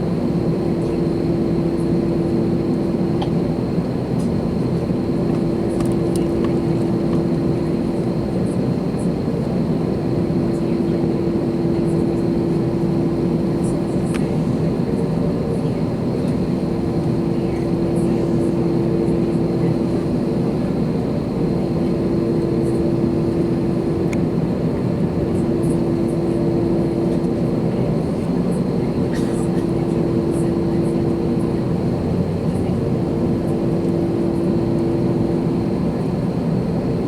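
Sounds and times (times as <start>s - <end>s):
jet engine cabin rumble: 0.0s - 37.0s.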